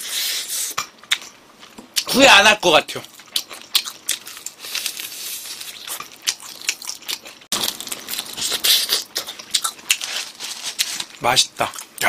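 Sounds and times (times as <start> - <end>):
crunchy chewing: 3.0 - 12.0.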